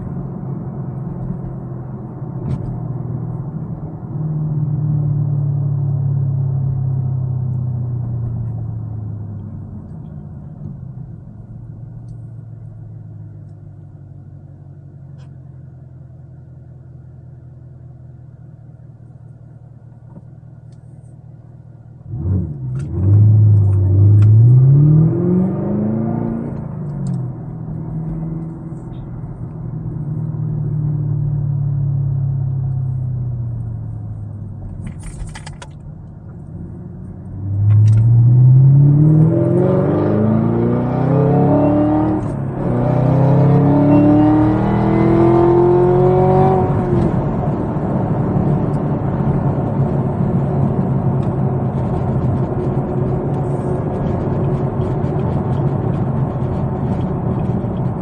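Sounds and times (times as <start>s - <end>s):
car engine accelerating: 22.0s - 58.0s.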